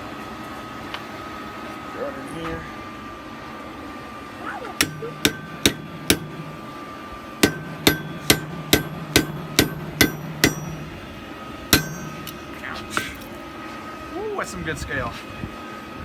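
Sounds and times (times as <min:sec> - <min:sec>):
hammer striking metal on anvil: 0:04.8 - 0:13.4.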